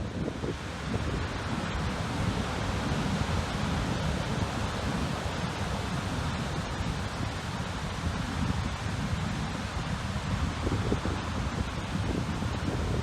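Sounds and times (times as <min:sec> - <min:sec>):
rough water rushing: 0:00.0 - 0:13.0
wind blowing on microphone: 0:00.0 - 0:13.0.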